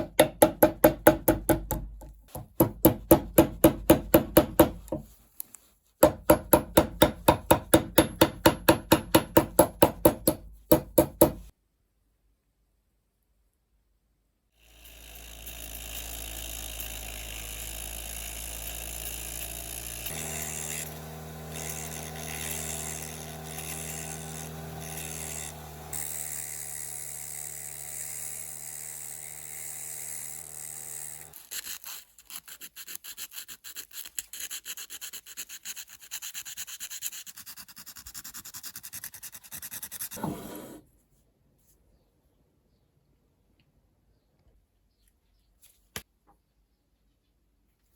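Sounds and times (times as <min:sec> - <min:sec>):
power tool sanding: 0:14.7 - 0:31.6.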